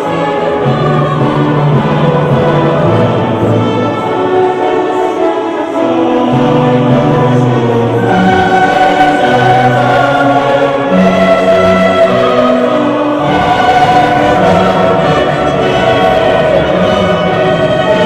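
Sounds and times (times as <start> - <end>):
choir singing: 0.0 - 18.0
orchestral accompaniment: 0.0 - 18.0.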